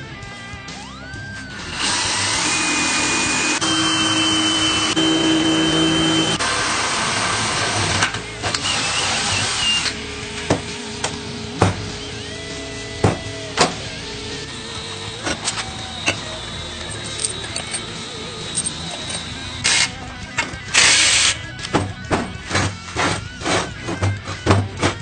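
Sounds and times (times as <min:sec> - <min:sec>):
power tool running: 0:01.4 - 0:25.0.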